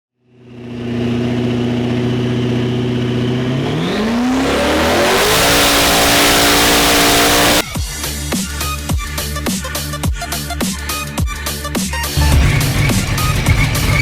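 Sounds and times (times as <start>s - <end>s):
car engine revving: 0.4s - 8.3s, 12.0s - 14.0s.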